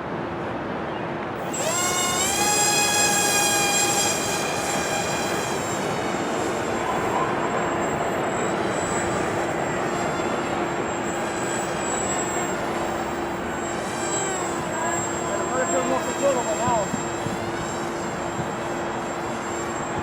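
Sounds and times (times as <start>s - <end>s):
small electric motors whining: 1.4s - 20.0s
wind noise on microphone: 16.0s - 20.0s.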